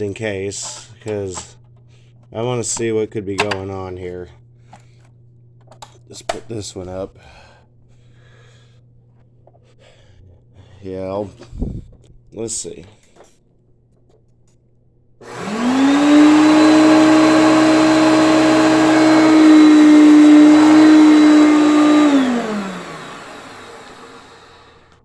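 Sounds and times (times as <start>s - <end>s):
vacuum cleaner motor whine: 15.2s - 25.0s.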